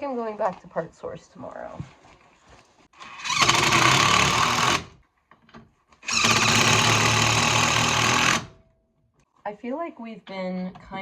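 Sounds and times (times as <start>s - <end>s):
handheld power tool running: 3.0s - 5.0s, 6.0s - 8.6s.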